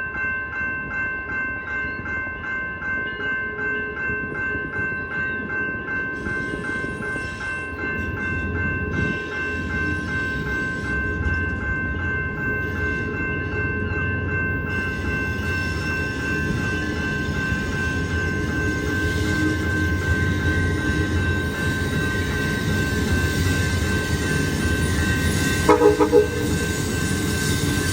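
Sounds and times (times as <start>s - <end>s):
pulsing ringing tone: 6.0s - 27.9s
train rumbling past: 6.1s - 27.9s.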